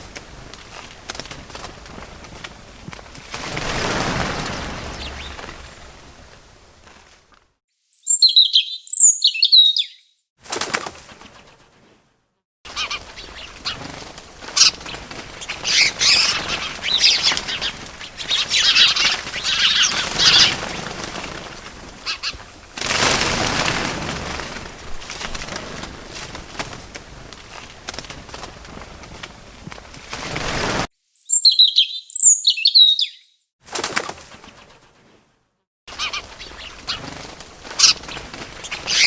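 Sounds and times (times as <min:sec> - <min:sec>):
wings flapping: 0:00.0 - 0:07.5, 0:10.4 - 0:12.0, 0:12.7 - 0:30.9, 0:33.6 - 0:35.2, 0:35.9 - 0:39.0
birds chirping: 0:03.4 - 0:06.6, 0:07.8 - 0:10.2, 0:12.7 - 0:22.4, 0:31.0 - 0:33.4, 0:35.9 - 0:39.0.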